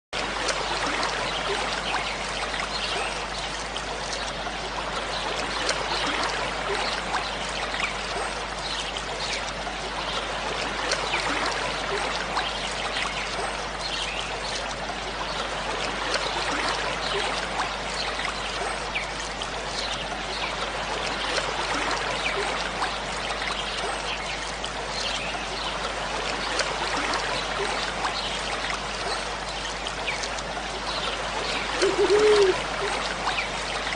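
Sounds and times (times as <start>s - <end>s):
waterfall rushing: 31.5s - 32.9s.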